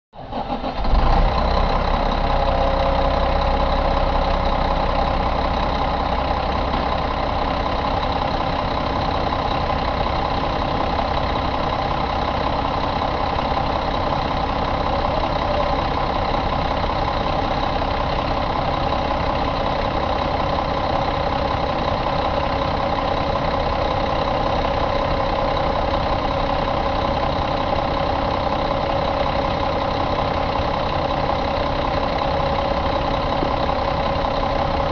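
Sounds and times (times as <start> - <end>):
diesel engine idling: 0.2 - 34.9.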